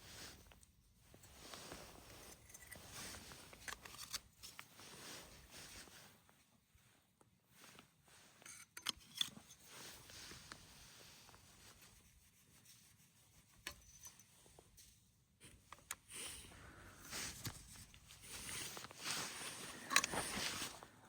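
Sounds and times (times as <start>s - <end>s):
canvas tent rustling: 18.3s - 21.0s.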